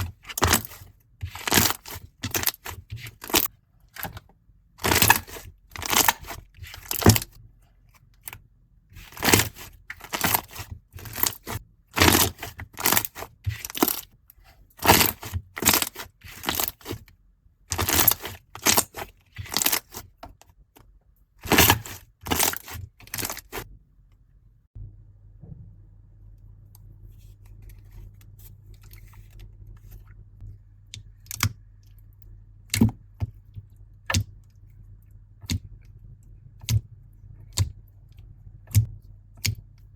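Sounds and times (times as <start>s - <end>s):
faint low hum: 22.9s - 39.9s.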